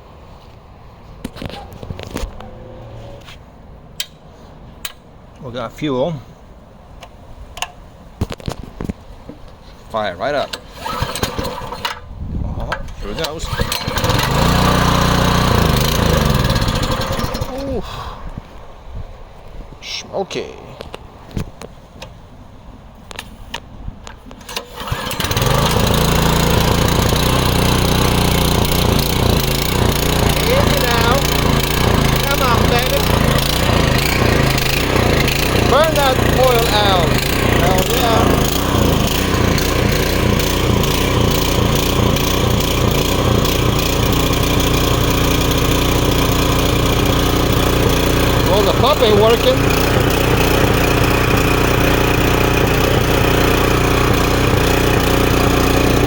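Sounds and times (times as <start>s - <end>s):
pressure washer engine running: 10.6s - 12.0s, 13.0s - 17.8s, 24.5s - 56.0s.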